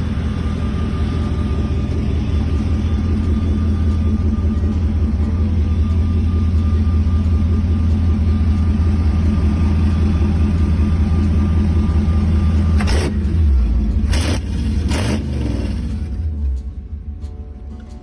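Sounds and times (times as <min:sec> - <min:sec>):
jeep engine idling: 0:00.0 - 0:18.0.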